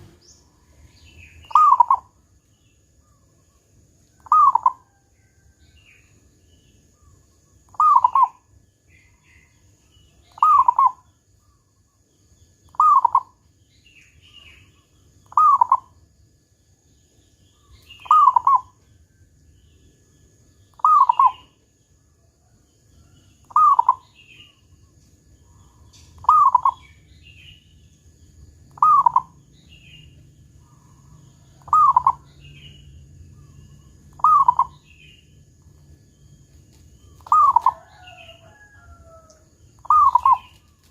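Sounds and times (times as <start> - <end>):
dove cooing: 1.3 - 2.1, 4.2 - 5.0, 7.7 - 8.4, 10.3 - 11.0, 12.7 - 13.4, 15.3 - 15.9, 18.0 - 18.8, 20.8 - 21.5, 23.4 - 24.0, 25.6 - 27.0, 28.7 - 32.8, 33.4 - 35.0, 37.0 - 39.2, 39.8 - 40.9.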